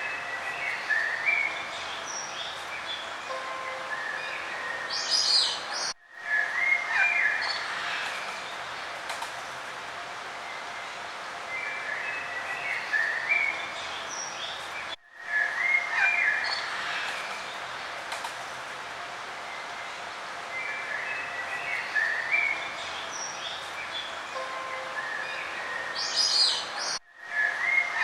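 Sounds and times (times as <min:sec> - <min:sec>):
songbirds chirping: 0:00.0 - 0:28.0.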